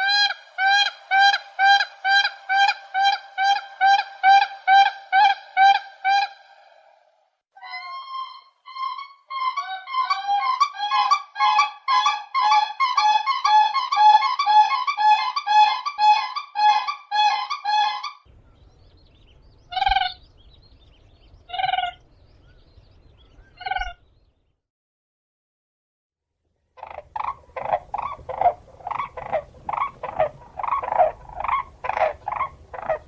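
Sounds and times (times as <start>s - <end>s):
cranes trumpeting calls: 7.8s - 18.2s, 26.8s - 33.0s.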